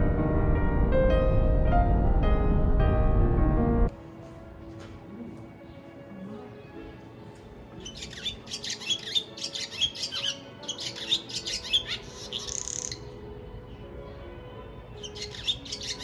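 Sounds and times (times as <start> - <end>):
faint background music: 0.0 - 16.0
bird chirping rapidly: 7.8 - 13.1, 15.0 - 16.0.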